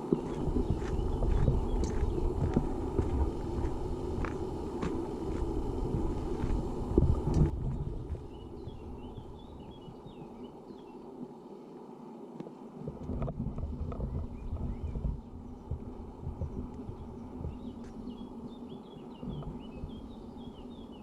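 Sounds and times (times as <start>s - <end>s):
footsteps on gravel trail: 0.0s - 9.8s, 14.1s - 18.3s
wind rumbling on microphone: 0.0s - 10.5s, 12.8s - 21.0s.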